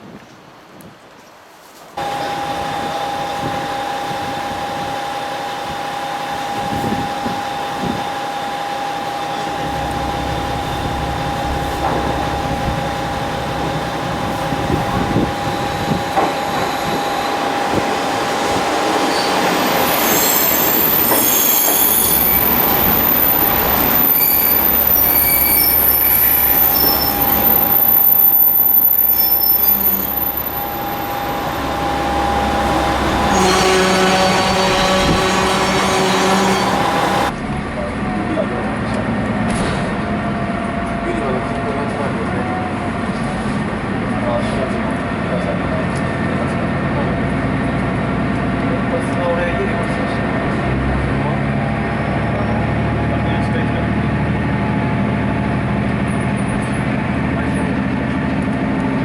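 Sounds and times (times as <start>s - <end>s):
train running on rails: 0.5s - 59.0s
train wheels squealing: 2.0s - 37.3s.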